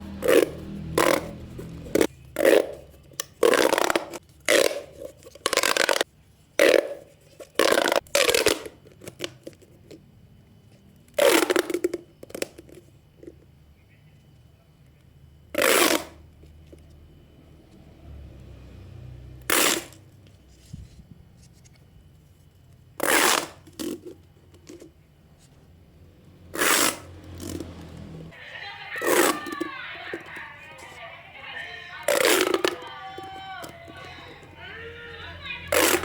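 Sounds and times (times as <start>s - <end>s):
plastic pop tubes popping: 2.0s - 6.0s, 6.6s - 9.6s, 11.2s - 12.8s, 32.1s - 32.9s.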